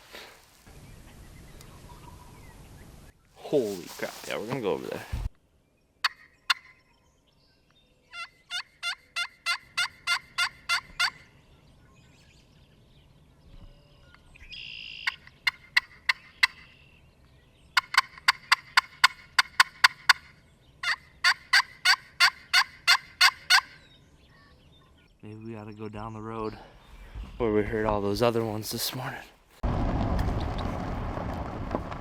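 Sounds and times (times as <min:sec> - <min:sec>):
bird calling sharp repeated notes: 0:06.0 - 0:07.0, 0:08.1 - 0:11.4, 0:13.9 - 0:17.1, 0:17.7 - 0:25.2.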